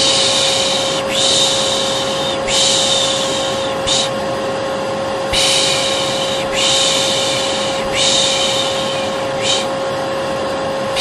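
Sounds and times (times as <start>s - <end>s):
person shushing: 0.0s - 4.2s, 5.3s - 9.7s
vacuum cleaner running: 0.0s - 11.0s.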